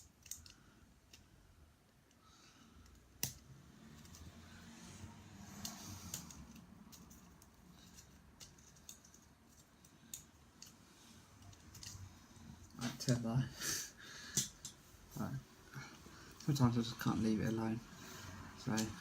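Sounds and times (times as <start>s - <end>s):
wooden model parts clicking and knocking: 0.0s - 1.3s, 5.6s - 10.8s, 11.4s - 12.1s, 18.6s - 19.0s.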